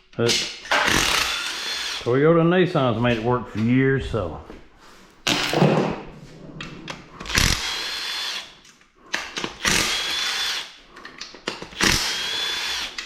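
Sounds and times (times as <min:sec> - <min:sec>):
knocks and clatter: 0:05.3 - 0:07.0.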